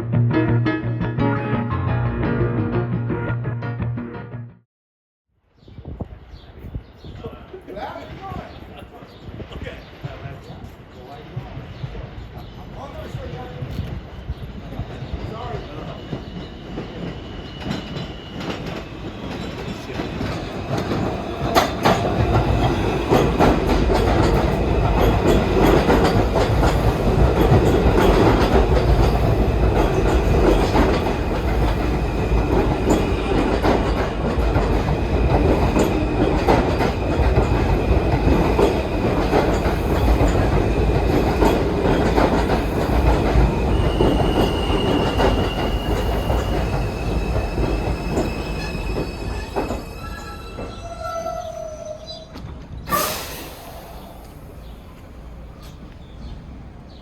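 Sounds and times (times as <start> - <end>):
subway train rumbling: 5.6 - 57.0
high wheel squeal: 43.4 - 52.3, 52.9 - 54.6.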